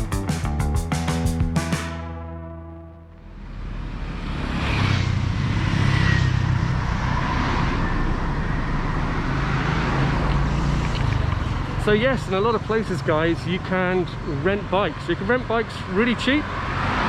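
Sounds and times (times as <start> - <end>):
background music: 0.0 - 3.4
road noise: 0.0 - 17.0.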